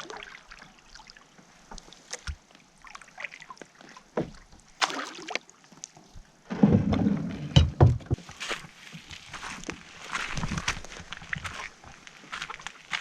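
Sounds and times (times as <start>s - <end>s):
water splashing: 0.0s - 6.8s
kayak scraping and bumping: 6.4s - 11.9s
kayak knocks: 6.5s - 8.3s.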